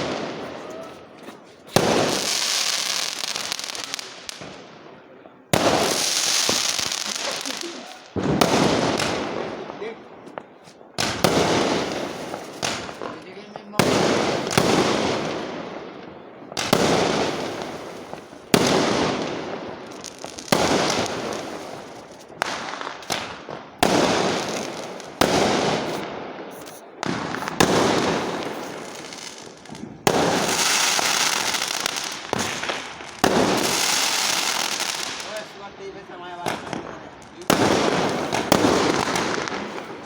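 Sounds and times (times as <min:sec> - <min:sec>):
fireworks bangs: 0:00.0 - 0:40.0.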